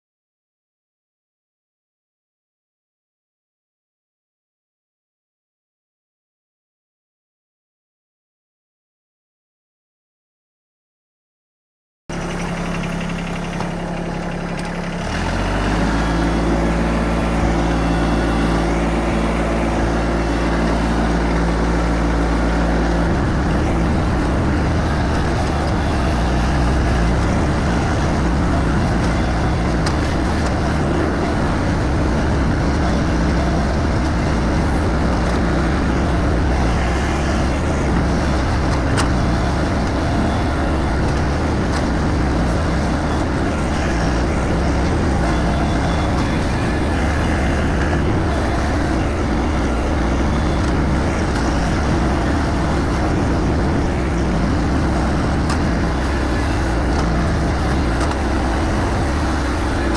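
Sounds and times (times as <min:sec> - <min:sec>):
vehicle engine running: 0:12.1 - 0:59.9.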